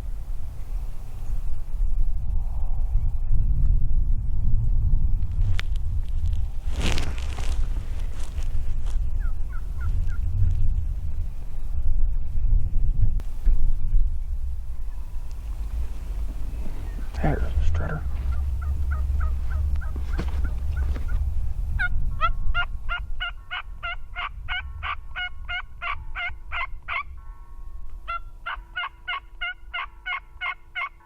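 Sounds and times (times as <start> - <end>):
wind rumbling on microphone: 0.0 - 30.9
turkey yelping: 16.2 - 21.2, 28.1 - 31.0.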